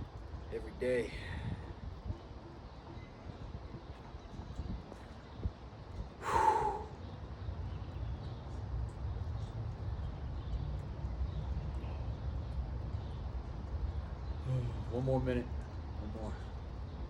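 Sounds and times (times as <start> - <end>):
steady low rumble: 0.0 - 17.0
man's forceful breathy exhale: 6.2 - 7.0.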